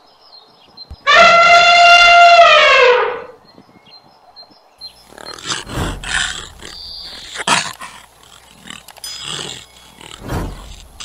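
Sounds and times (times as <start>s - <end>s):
elephant trumpeting: 1.1s - 3.3s, 5.0s - 11.0s
snow leopard rough calls: 4.9s - 11.0s.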